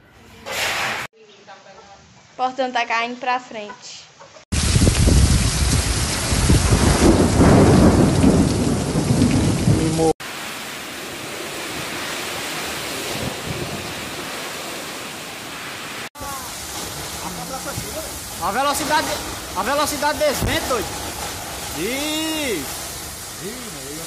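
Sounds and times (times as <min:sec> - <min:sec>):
wind gusts buffeting microphone: 0:04.5 - 0:10.1, 0:11.5 - 0:14.6, 0:16.2 - 0:23.4
heavy rain: 0:04.5 - 0:24.0.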